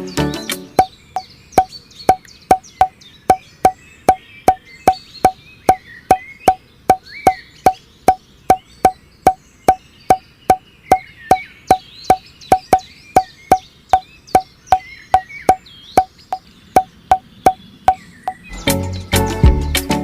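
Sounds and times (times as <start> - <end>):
sharp hollow clicks: 0.8 - 18.4
faint chirping: 0.8 - 18.6.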